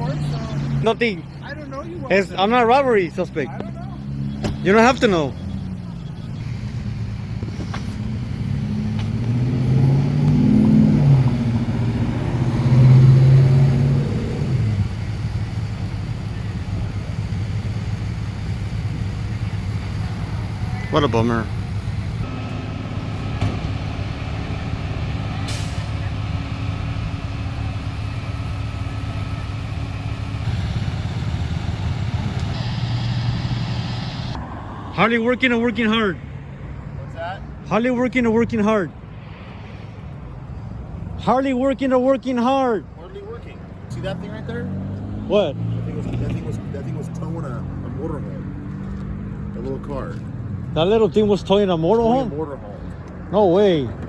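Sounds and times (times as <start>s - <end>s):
car engine accelerating: 0.0s - 35.6s, 43.1s - 51.7s
engine idling: 14.6s - 34.4s.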